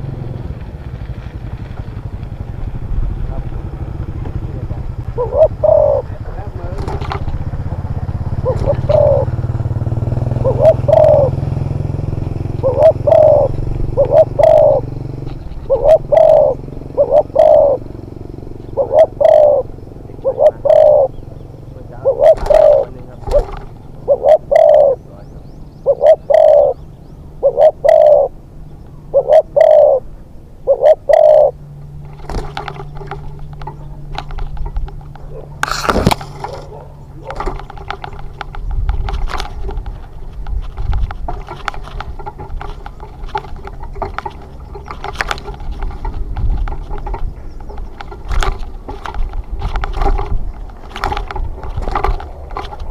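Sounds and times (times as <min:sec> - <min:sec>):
dove cooing: 0:01.8 - 0:52.9
faint clicks and rattling: 0:06.3 - 0:09.2, 0:22.2 - 0:24.0, 0:32.0 - 0:52.9.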